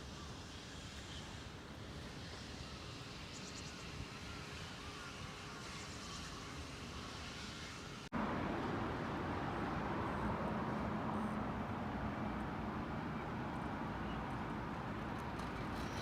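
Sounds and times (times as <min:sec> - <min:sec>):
traffic noise: 0:06.1 - 0:16.0.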